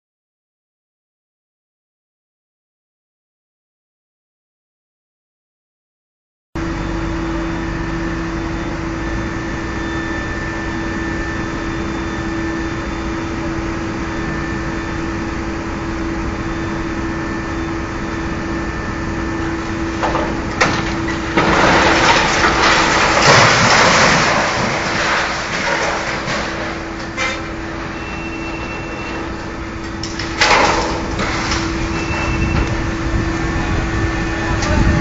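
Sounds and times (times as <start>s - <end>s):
steady machine hum: 6.6s - 35.0s
loud crashing and crackling: 19.4s - 33.9s.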